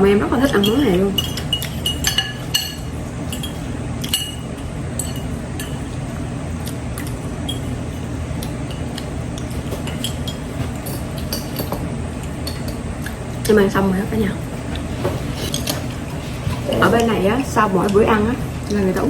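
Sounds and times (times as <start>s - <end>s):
steady low hum: 0.0s - 19.0s
fork clinking against a plate: 0.5s - 5.9s, 8.4s - 11.8s.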